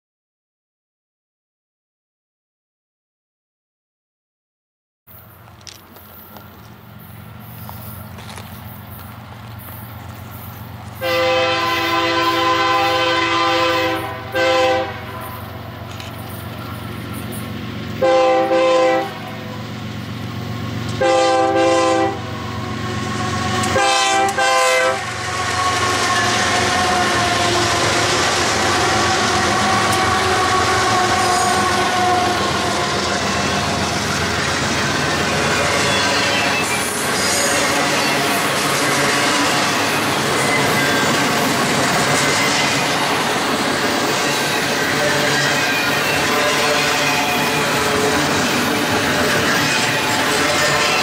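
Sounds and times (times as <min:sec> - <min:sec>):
train wheels rushing on rail: 0:05.2 - 0:51.0
locomotive air horn blasts: 0:11.0 - 0:15.4, 0:18.0 - 0:19.6, 0:20.9 - 0:34.0, 0:35.4 - 0:39.9, 0:45.0 - 0:48.2, 0:49.1 - 0:51.0.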